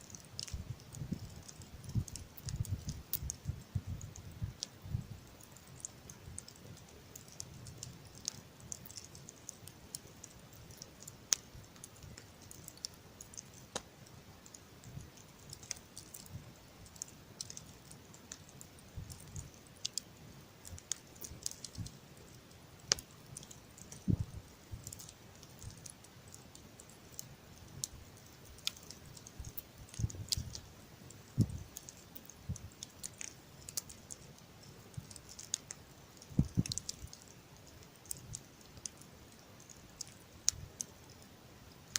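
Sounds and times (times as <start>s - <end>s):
campfire crackling and popping: 0.0s - 41.9s.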